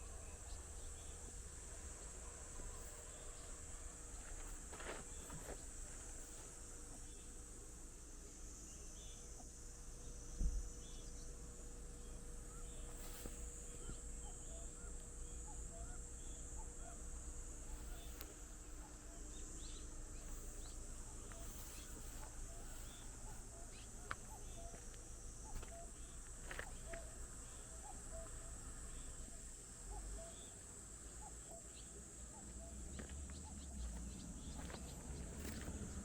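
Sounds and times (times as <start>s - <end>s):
insect chorus: 0.0s - 36.0s
bird chirps: 17.7s - 24.8s.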